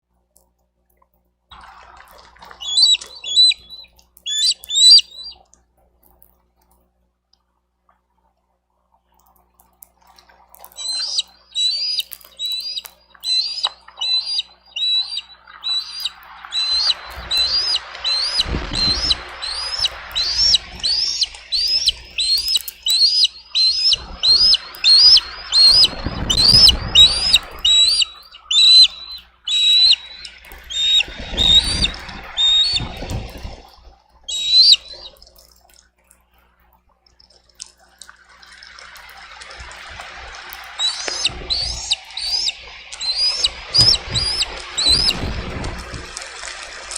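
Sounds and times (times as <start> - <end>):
eagle chirping calls: 2.5 - 5.4, 10.6 - 33.7, 34.3 - 35.2, 40.6 - 45.7
wind rumbling on microphone: 14.8 - 28.9, 29.5 - 34.8, 39.6 - 46.9.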